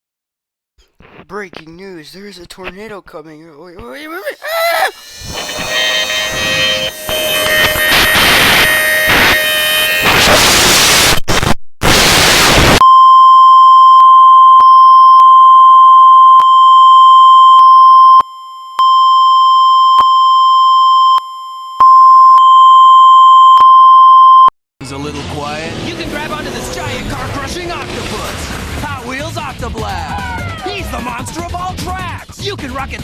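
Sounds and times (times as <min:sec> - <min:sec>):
harsh noisy blare: 0:03.9 - 0:10.8.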